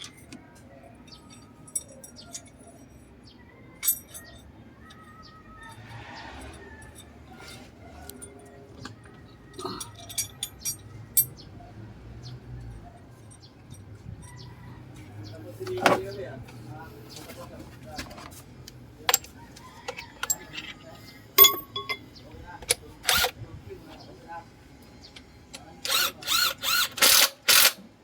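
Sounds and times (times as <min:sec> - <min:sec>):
metal tools clinking: 0:00.0 - 0:11.4, 0:19.0 - 0:23.3.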